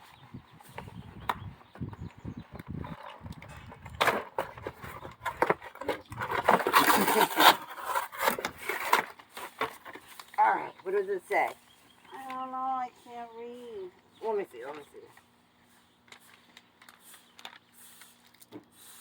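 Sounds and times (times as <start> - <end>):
packaging rustling and tearing: 4.4 - 10.4, 16.0 - 19.0.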